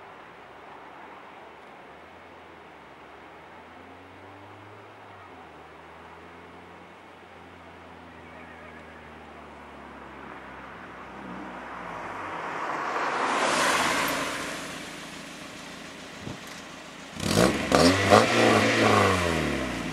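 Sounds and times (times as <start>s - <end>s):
car passing by: 3.0s - 19.9s
car engine revving: 3.8s - 19.9s
exhaust cracks: 10.0s - 19.9s.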